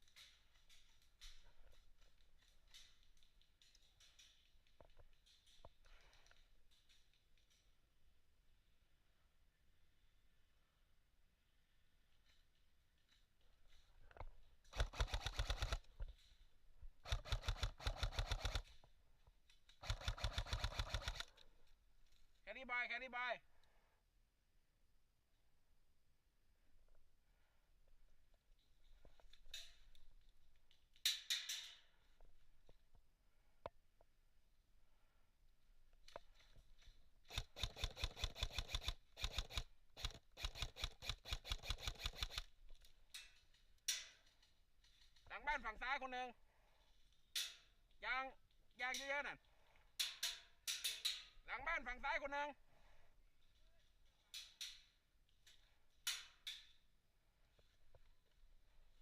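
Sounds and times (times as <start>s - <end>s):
airsoft rifle shots: 14.7s - 15.9s, 17.0s - 18.7s, 19.8s - 21.3s
airsoft gun full-auto bursts: 14.7s - 16.0s, 17.0s - 18.8s, 19.8s - 21.4s, 37.2s - 42.5s.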